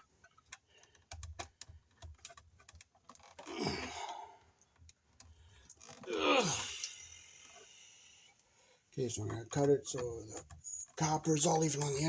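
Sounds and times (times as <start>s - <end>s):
man groaning with effort: 6.0s - 6.8s.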